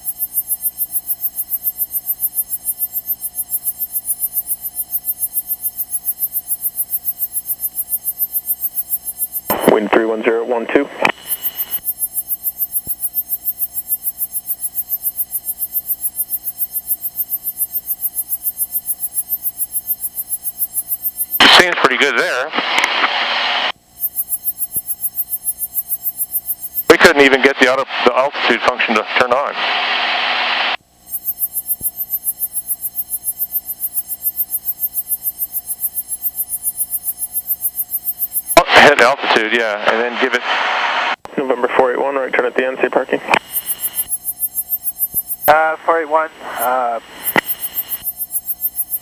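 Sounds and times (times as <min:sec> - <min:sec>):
aircraft cockpit buzzing drone: 0:00.0 - 0:49.0
pulsing electronic buzzing: 0:23.2 - 0:26.9, 0:30.0 - 0:38.6, 0:43.4 - 0:46.2, 0:47.0 - 0:49.0.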